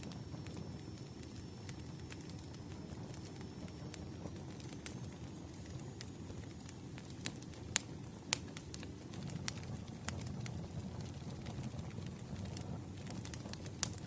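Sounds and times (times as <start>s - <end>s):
campfire crackling and popping: 0.0s - 14.0s
low rumble of flames: 0.0s - 14.0s.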